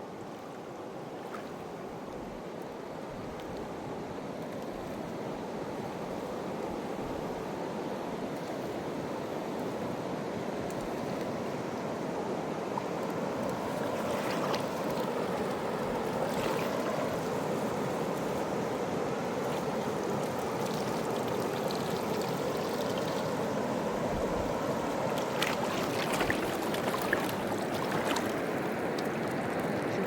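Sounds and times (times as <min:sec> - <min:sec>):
river rushing: 0:11.5 - 0:30.0.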